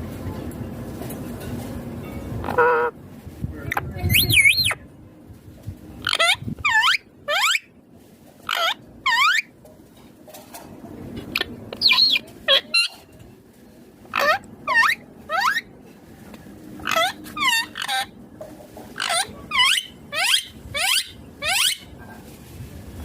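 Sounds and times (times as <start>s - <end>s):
parakeet squawking: 2.4s - 2.9s, 4.1s - 4.8s, 6.0s - 7.7s, 8.5s - 9.5s, 11.4s - 13.0s, 14.1s - 15.7s, 16.8s - 18.2s, 19.0s - 21.9s.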